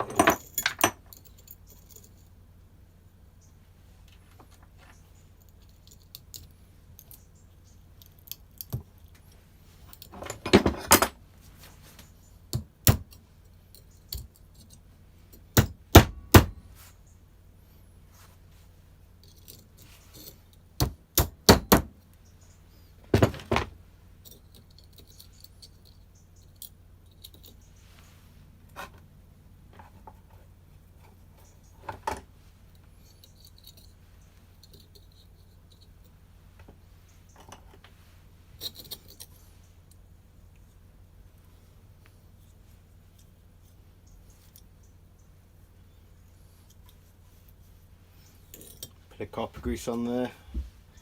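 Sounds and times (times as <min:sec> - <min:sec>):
small metal parts clinking: 0:00.0 - 0:02.4, 0:04.4 - 0:11.2, 0:12.5 - 0:15.6, 0:19.2 - 0:20.7, 0:24.2 - 0:27.8, 0:32.7 - 0:36.2, 0:38.6 - 0:40.0, 0:48.2 - 0:49.0
low steady hum: 0:00.0 - 0:51.0.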